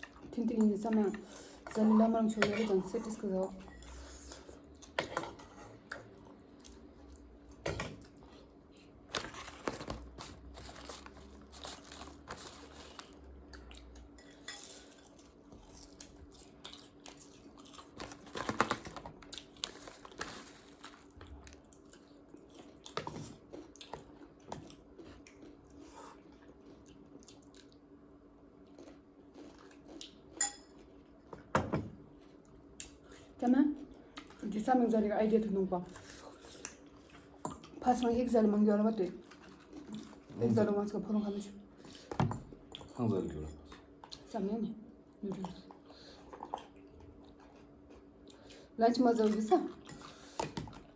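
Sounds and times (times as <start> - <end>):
chewing and crunching food: 0.0 - 34.7, 35.5 - 40.6, 41.7 - 44.4, 45.1 - 50.9
utensils clinking against dishes: 30.4 - 30.8.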